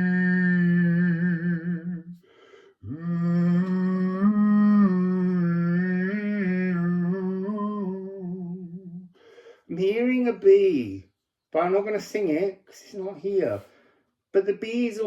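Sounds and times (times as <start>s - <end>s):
person humming: 0.0s - 9.1s
person breathing: 2.2s - 3.0s, 9.1s - 9.7s, 13.6s - 14.2s.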